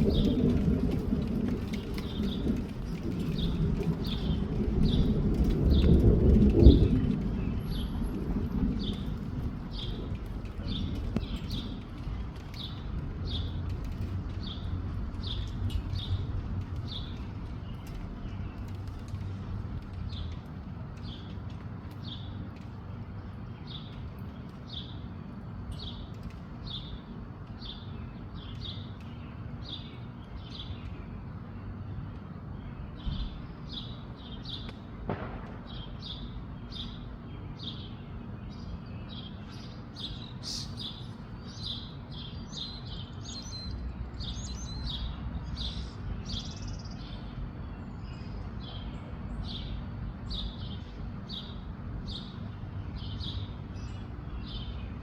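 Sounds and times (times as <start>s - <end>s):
low rumble of wind: 0.0s - 55.0s
small songbird chirping: 25.7s - 31.9s, 35.7s - 55.0s.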